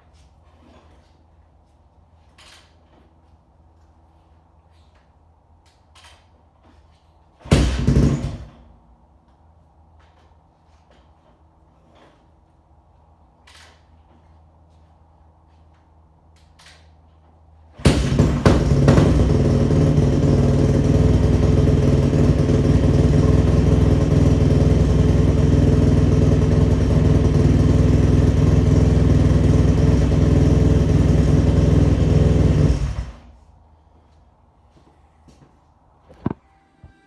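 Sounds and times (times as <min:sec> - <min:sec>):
dirt bike engine starting and idling: 0:06.0 - 0:08.7, 0:17.7 - 0:33.5.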